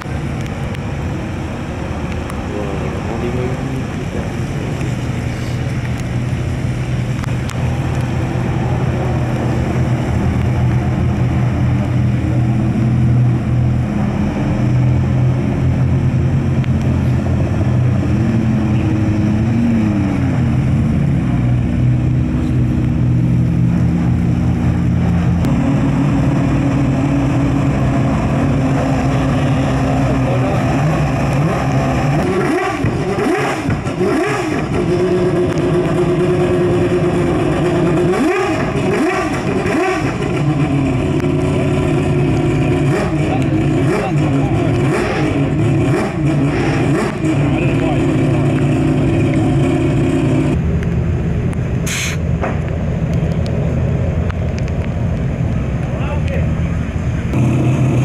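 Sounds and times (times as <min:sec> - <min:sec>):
car engines revving: 0:00.0 - 0:58.0
car accelerating hard: 0:07.2 - 0:50.6, 0:56.7 - 0:58.0.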